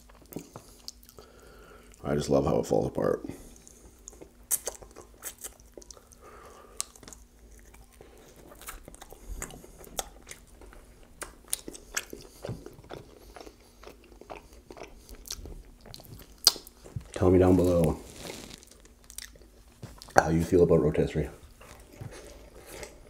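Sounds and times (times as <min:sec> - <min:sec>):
chewing with wet mouth smacks: 0:00.0 - 0:01.2, 0:03.5 - 0:17.2, 0:18.7 - 0:20.2.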